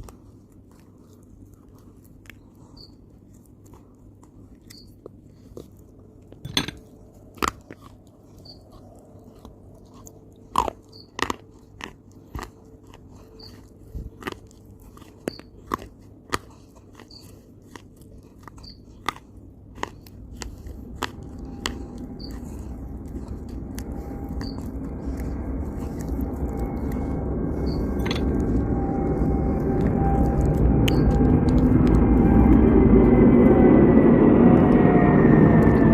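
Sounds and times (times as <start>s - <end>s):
person chewing crunchy food: 0.0s - 35.9s
low rumble: 20.0s - 35.9s.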